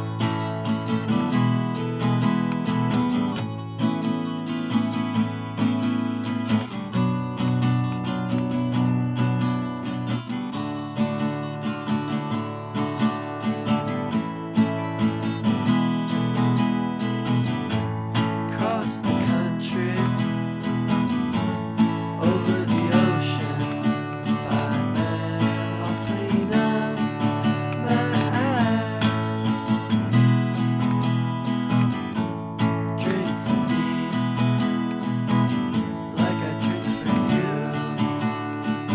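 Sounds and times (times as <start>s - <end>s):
acoustic guitar strumming: 0.0s - 38.9s.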